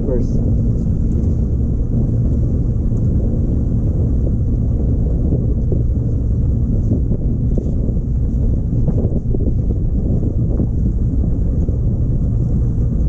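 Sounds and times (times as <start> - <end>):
boat motor rumbling: 0.0 - 13.0.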